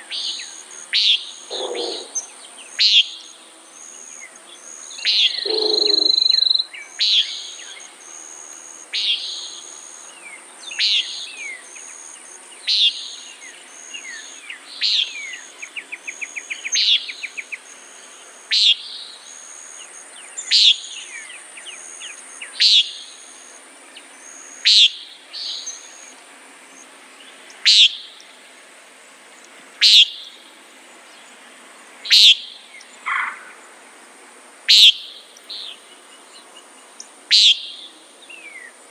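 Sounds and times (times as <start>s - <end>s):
high insect trill: 0.0s - 38.9s
nighthawk nasal peent call: 0.1s - 3.2s, 5.0s - 7.6s, 27.6s - 28.1s, 29.8s - 30.3s, 32.1s - 33.6s, 34.7s - 35.1s, 37.3s - 37.8s.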